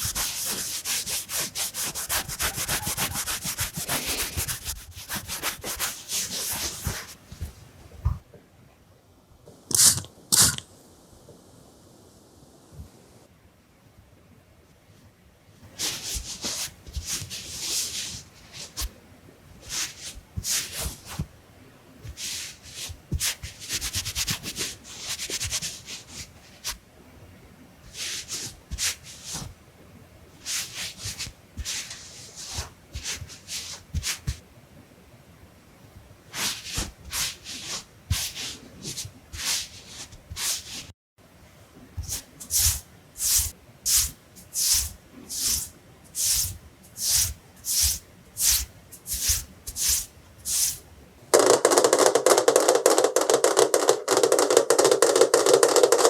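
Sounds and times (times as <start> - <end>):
drawing tool scratchy rubbing: 0.0 - 7.5, 15.8 - 18.8, 19.6 - 21.2, 22.1 - 26.8, 27.9 - 29.5, 30.4 - 34.4, 36.4 - 40.9, 42.0 - 50.8.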